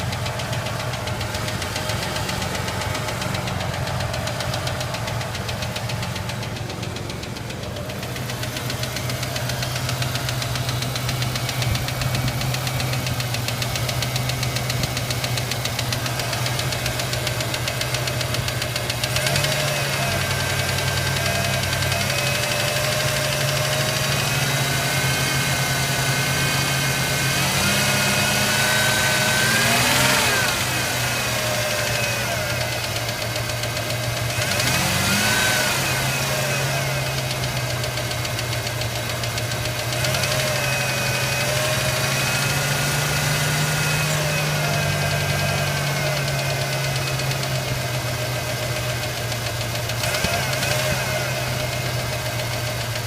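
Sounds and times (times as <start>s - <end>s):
fast ticking: 0.0s - 25.4s, 29.8s - 35.1s, 35.9s - 53.0s
engine running: 0.0s - 53.0s.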